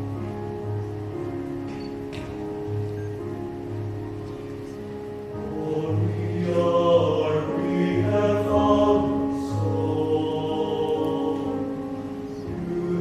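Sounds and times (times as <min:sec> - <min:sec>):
youth choir singing chords: 0:04.9 - 0:13.0.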